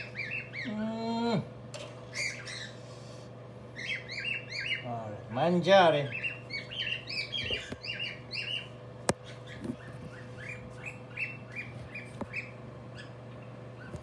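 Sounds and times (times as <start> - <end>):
bird chirping: 0.0 - 0.9, 2.1 - 2.9, 3.7 - 5.0, 6.0 - 14.0
steady low hum: 0.0 - 14.0.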